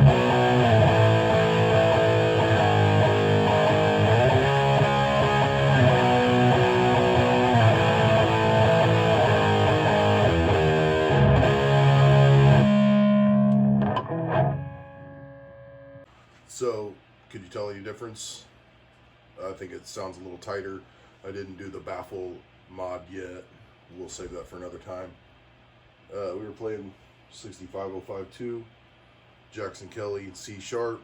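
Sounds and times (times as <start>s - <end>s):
distorted electric guitar riffing: 0.0s - 16.0s.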